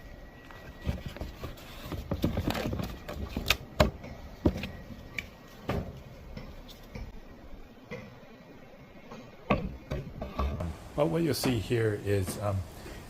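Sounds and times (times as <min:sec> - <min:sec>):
wooden parts knocking and clattering: 0:00.8 - 0:07.1.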